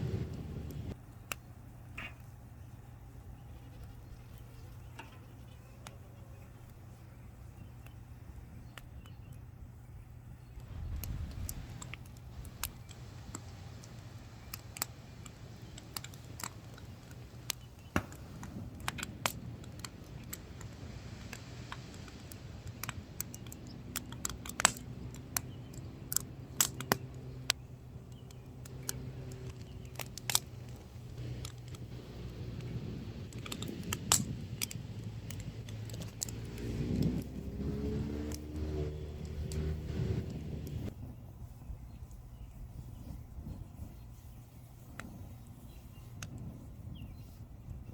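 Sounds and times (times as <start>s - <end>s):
vehicle engine: 0.0s - 1.0s, 18.0s - 41.0s
firewood crackling and popping: 0.0s - 2.4s, 10.4s - 41.1s
steady low hum: 0.0s - 47.9s.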